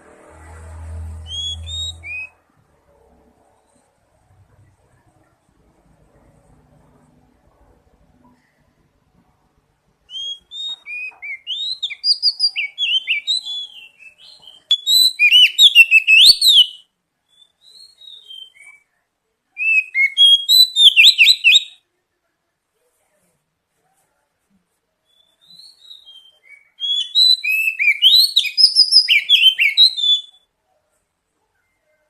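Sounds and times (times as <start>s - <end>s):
bird singing whistled phrases: 1.2s - 2.4s, 10.1s - 18.8s, 19.6s - 21.8s, 25.1s - 30.5s.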